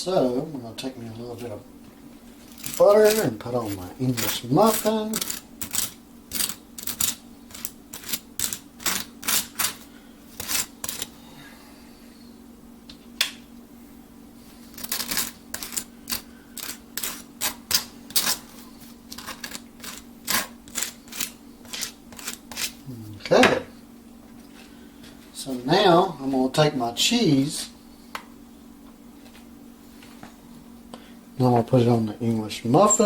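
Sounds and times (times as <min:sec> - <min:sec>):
steady low hum: 0:00.0 - 0:33.0
knife scraping butter on toast: 0:02.5 - 0:11.1, 0:14.7 - 0:22.8.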